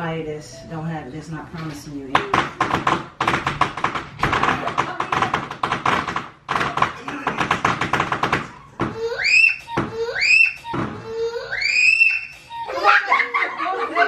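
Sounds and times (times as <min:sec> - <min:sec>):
high rising and falling cry: 0:09.0 - 0:13.4.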